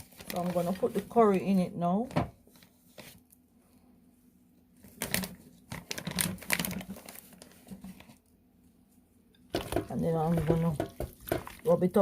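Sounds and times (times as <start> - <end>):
spice packet tapping and rustling: 5.0 - 8.1, 9.5 - 11.6.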